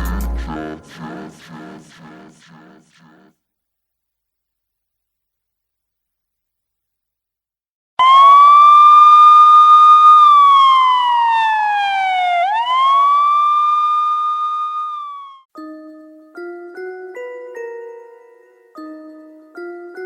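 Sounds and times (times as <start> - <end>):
siren tone: 8.0 - 15.4.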